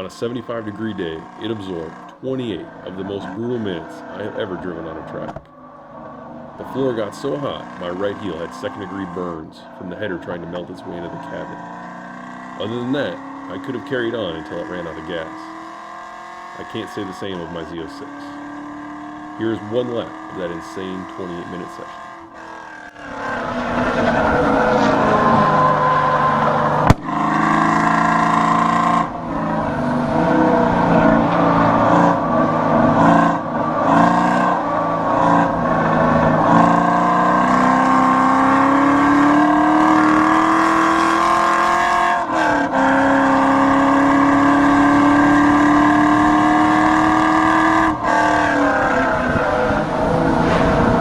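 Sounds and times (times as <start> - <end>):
race car engine revving: 0.0 - 51.0
sharp knock: 26.8 - 27.2.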